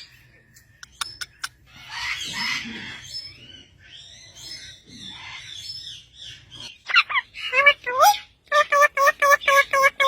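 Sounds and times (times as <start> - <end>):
parrot squawking: 1.4 - 3.0, 6.7 - 10.0.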